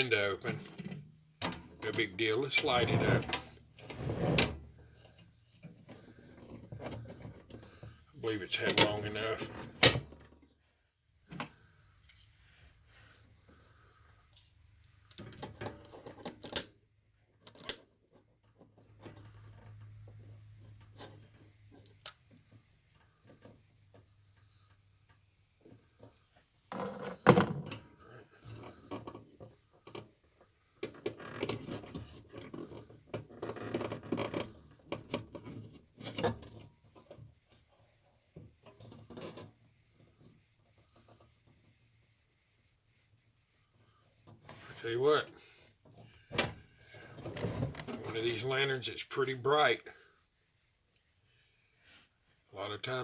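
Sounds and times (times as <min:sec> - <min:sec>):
rustling of objects moved: 0:43.7 - 0:50.4.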